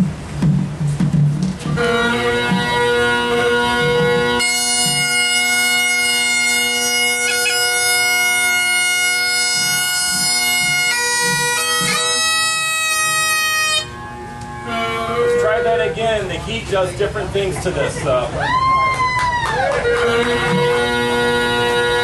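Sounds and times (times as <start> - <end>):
bagpipes playing long notes: 1.7 - 16.4, 19.7 - 22.0.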